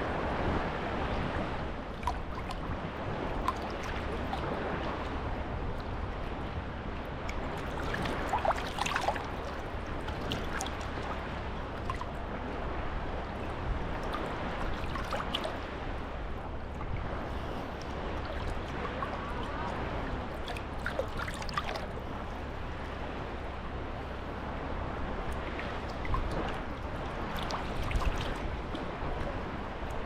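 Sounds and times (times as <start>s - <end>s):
small waves lapping at shore: 0.0s - 30.0s
light splashes and clicks: 2.0s - 2.7s, 3.3s - 6.0s, 7.2s - 12.1s, 14.0s - 15.8s, 17.8s - 22.0s, 25.2s - 30.0s.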